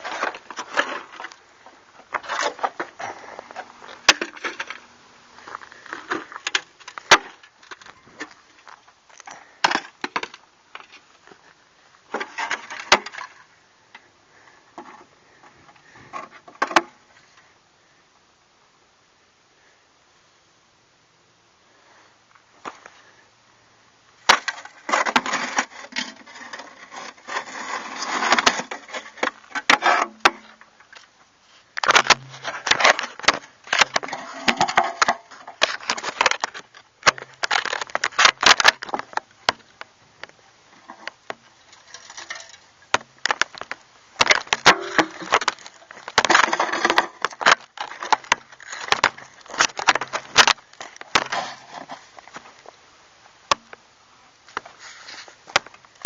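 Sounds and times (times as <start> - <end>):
dry crunching and cracking: 31.8 - 52.8.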